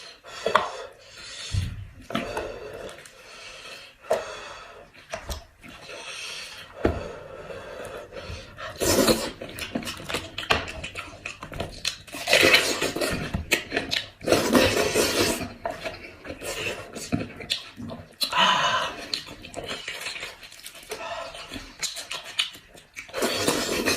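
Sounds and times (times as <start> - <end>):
gnawing and chewing meat: 7.9 - 23.9.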